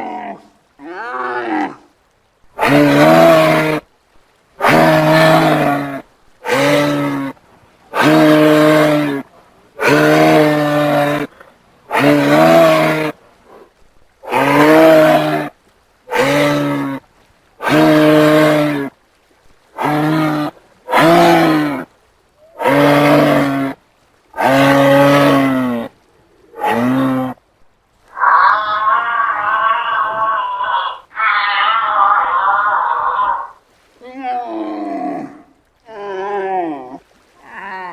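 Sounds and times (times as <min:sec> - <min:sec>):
giraffe calling: 0:28.1 - 0:33.6.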